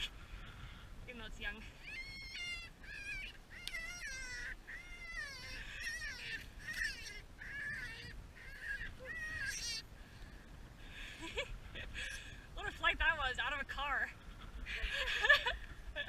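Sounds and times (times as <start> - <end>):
young rabbit screaming: 1.8 - 9.9.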